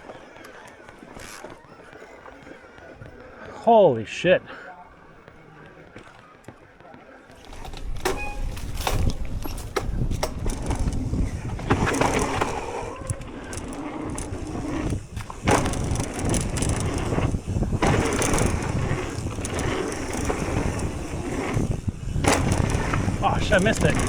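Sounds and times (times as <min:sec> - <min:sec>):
bike knocking and rattling: 0:00.0 - 0:24.0
tyre and wind rush: 0:07.4 - 0:24.0.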